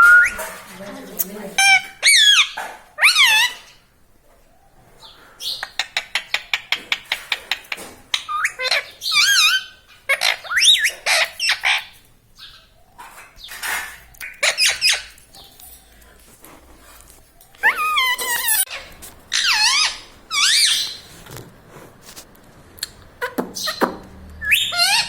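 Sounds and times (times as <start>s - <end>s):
parrot wavering whistles: 0.0s - 0.4s
parrot harsh squawks: 1.6s - 3.7s, 17.6s - 21.0s, 24.4s - 25.0s.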